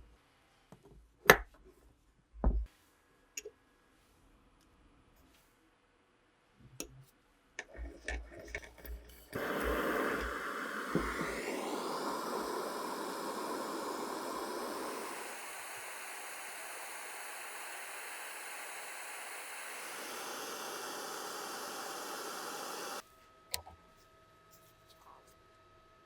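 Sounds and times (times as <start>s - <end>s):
loud steady hiss: 9.4s - 23.0s.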